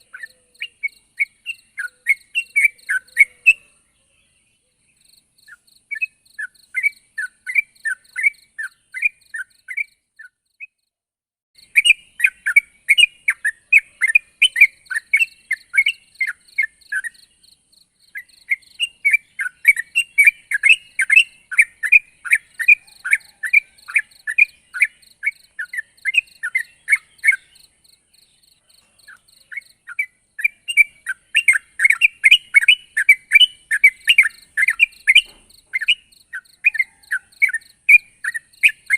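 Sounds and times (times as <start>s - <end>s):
bird singing whistled notes: 0.0s - 10.9s, 11.6s - 38.9s.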